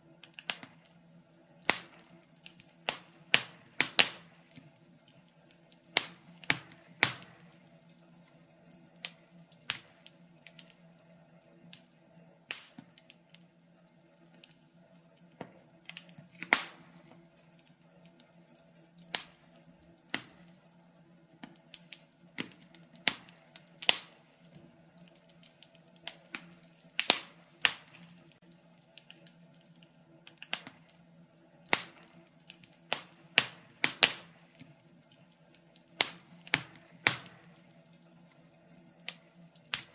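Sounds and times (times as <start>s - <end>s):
low steady hum: 0.0s - 39.9s
wood fire crackling and popping: 0.0s - 39.9s.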